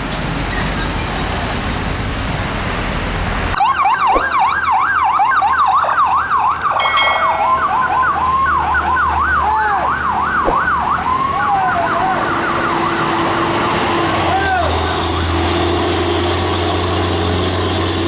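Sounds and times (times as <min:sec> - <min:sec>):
horn-like tone: 0:06.8 - 0:08.1.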